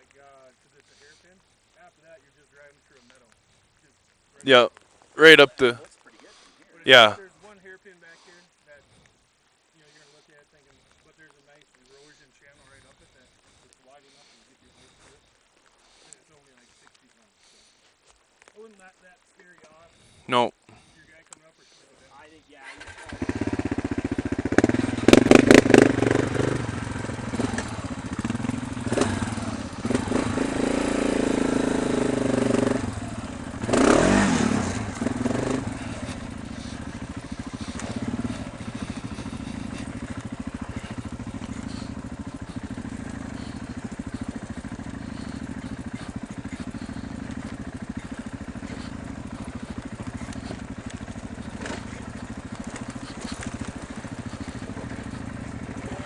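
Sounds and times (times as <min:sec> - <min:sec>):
dirt bike engine revving: 0:22.6 - 0:56.0.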